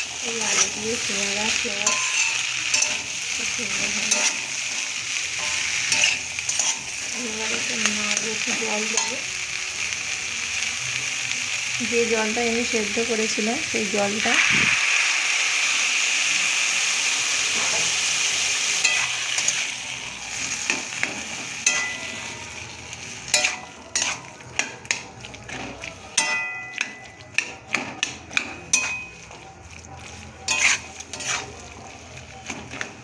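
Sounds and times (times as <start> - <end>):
loud sizzling in a pan: 0.0 - 33.0
spatula scraping a pan: 1.6 - 7.1, 23.2 - 26.4, 27.3 - 33.0.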